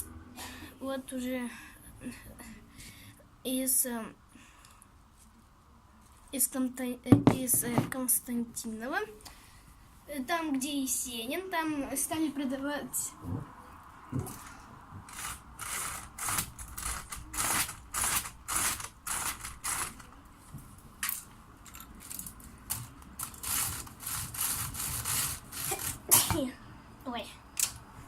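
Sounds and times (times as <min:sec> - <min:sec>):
object rustling and scraping: 0:21.8 - 0:26.2.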